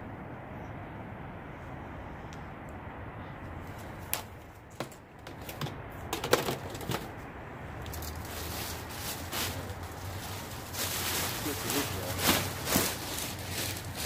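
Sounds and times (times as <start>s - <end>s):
items being handled and set down: 4.1s - 7.2s.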